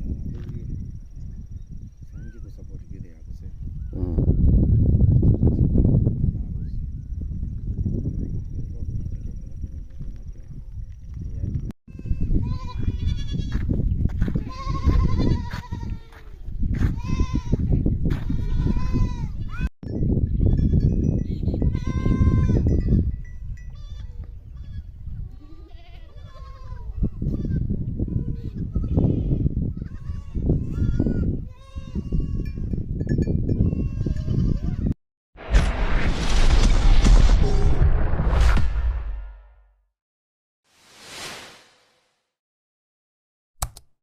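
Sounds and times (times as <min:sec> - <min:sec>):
goats bleating: 0:14.4 - 0:16.3, 0:24.6 - 0:27.5
loud burst of noise: 0:35.4 - 0:39.4.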